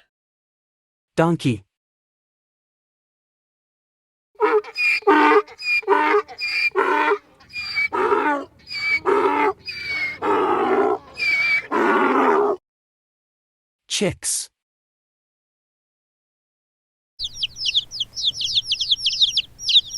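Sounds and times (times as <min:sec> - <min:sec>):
donkey braying: 0:04.4 - 0:12.6.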